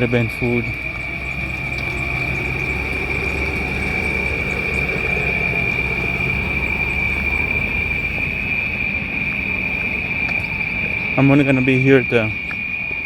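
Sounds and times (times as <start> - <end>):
low rumble: 0.0 - 11.9
cicadas buzzing: 0.0 - 13.0.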